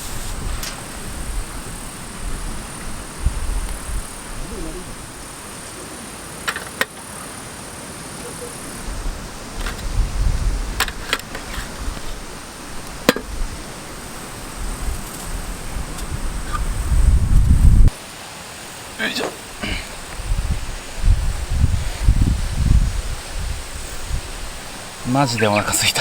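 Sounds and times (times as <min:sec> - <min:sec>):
wind buffeting microphone: 0:00.0 - 0:05.4, 0:08.7 - 0:18.0, 0:19.6 - 0:25.6.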